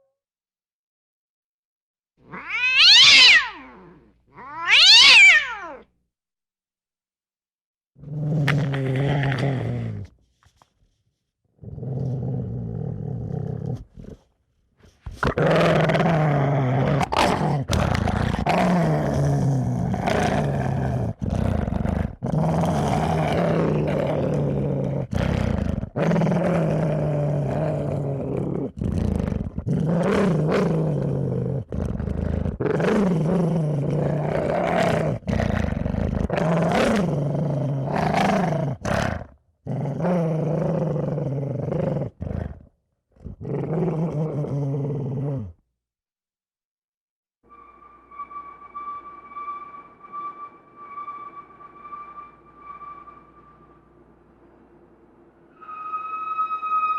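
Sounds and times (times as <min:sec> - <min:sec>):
deep creature growls: 0:15.2 - 0:45.6.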